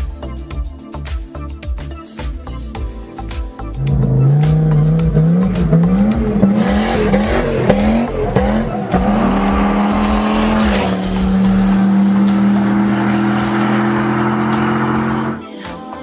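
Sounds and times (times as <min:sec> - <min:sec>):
music with ticking beat: 0:00.0 - 0:16.0
car engine revving: 0:03.8 - 0:15.4.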